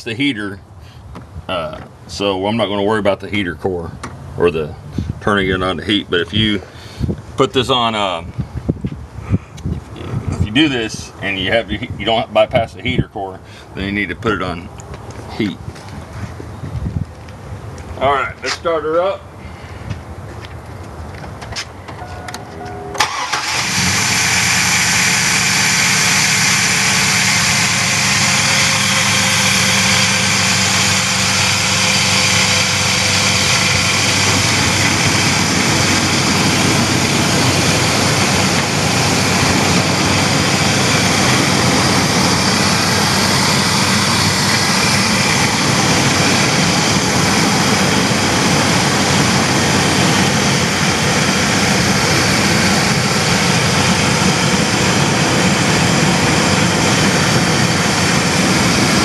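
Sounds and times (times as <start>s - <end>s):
van engine idling: 22.7s - 59.0s.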